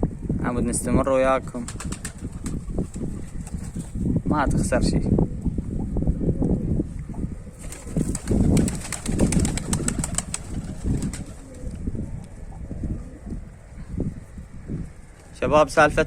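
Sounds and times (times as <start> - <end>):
pigeons cooing: 6.6 - 14.0.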